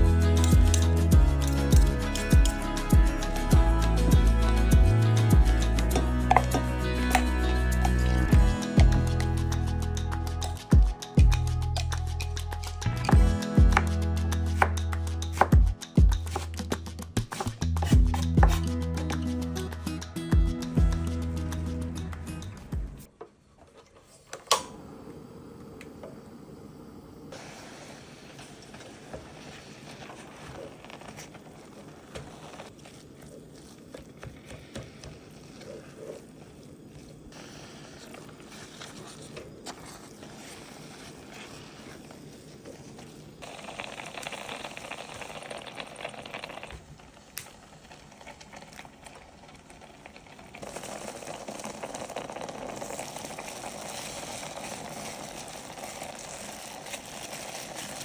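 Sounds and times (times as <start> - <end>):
hiss of bubbling liquid: 24.8 - 58.0.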